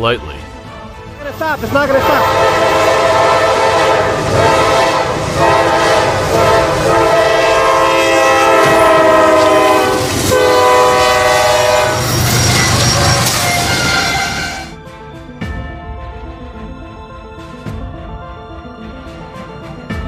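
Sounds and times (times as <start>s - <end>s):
low rumble of moving train: 0.0s - 14.8s
train horn blasts: 2.0s - 14.8s.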